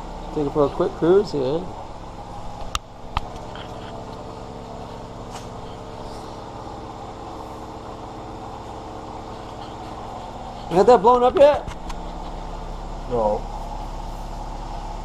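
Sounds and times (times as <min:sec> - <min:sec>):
truck engine idling: 0:00.0 - 0:15.0
man talking: 0:00.3 - 0:01.7, 0:10.7 - 0:11.7.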